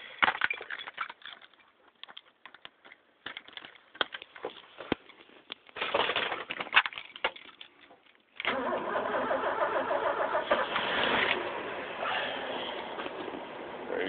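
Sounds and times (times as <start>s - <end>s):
clicks and rustling handling noise: 0.0s - 8.5s
crackling and crunching: 0.0s - 8.6s.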